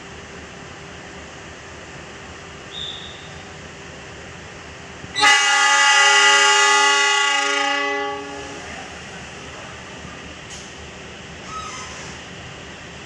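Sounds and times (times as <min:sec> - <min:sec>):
locomotive air horn blast: 0:05.2 - 0:08.7.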